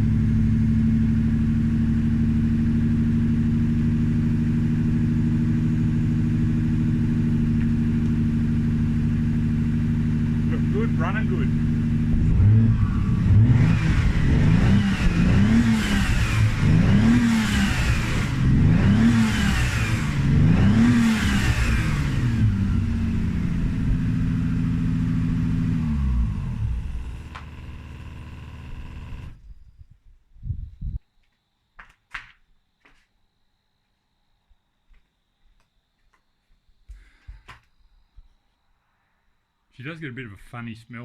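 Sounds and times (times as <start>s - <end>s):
car engine idling: 0.0s - 29.4s
car engine revving: 0.0s - 29.4s.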